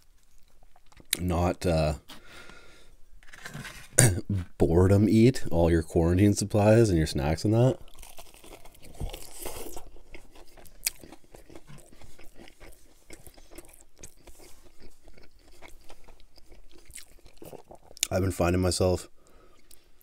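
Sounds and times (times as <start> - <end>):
crunchy bite of fried chicken: 7.8 - 18.1
crunchy close-up chewing: 7.8 - 18.1.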